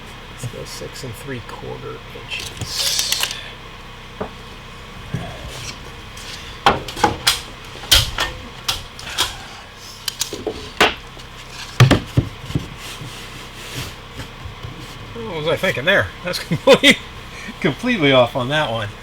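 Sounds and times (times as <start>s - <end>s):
hand tools clacking: 2.3s - 3.4s, 5.5s - 12.0s.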